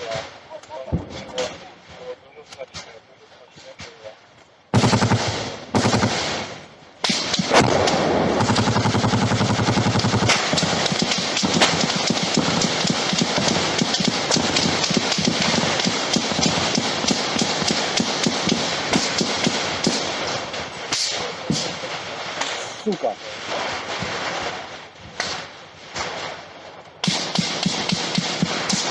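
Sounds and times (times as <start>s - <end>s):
automatic gunfire: 4.7s - 22.1s, 27.0s - 28.9s.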